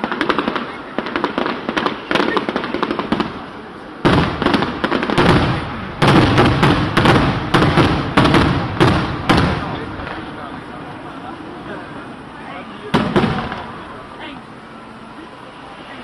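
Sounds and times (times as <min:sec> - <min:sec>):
deep fireworks bangs: 0:00.0 - 0:10.6, 0:12.9 - 0:13.8
fireworks crackling bangs: 0:00.0 - 0:15.0.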